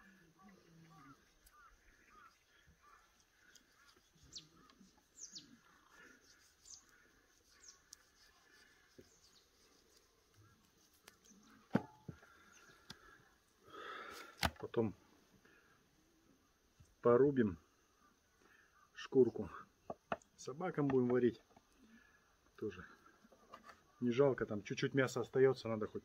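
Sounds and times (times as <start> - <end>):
faint bird chirps: 0.0 - 13.4.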